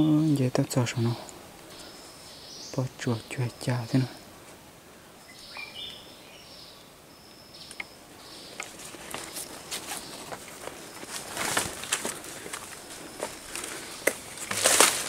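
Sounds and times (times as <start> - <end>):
leaves and twigs rustling: 0.0 - 6.4, 7.3 - 15.0
bird calling: 5.2 - 15.0.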